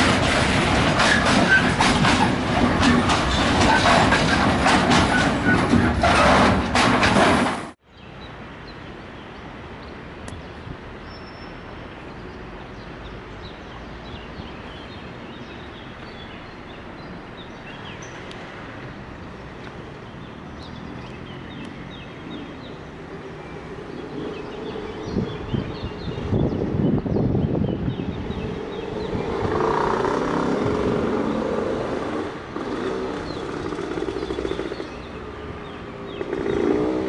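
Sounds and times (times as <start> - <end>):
train wheels clattering: 0.0 - 7.7.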